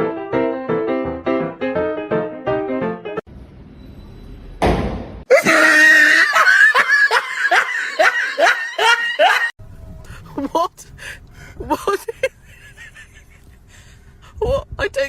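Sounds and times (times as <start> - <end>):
piano music: 0.0 - 3.3
shrill rising cries: 5.3 - 9.5.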